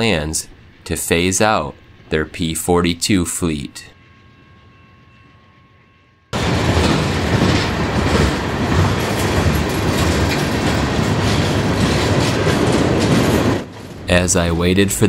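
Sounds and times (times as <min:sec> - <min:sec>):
train wheels rumbling and rattling: 0:06.4 - 0:15.0.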